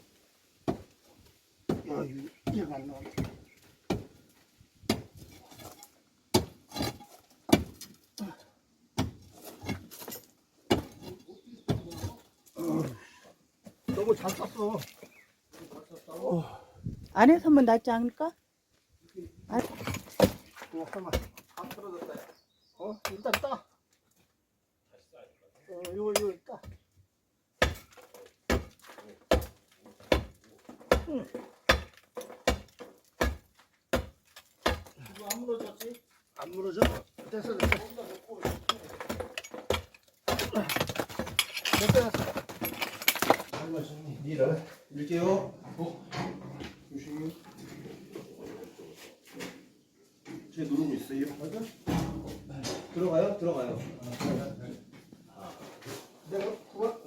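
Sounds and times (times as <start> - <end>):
hammer striking wall: 27.6 - 28.7, 30.9 - 33.4.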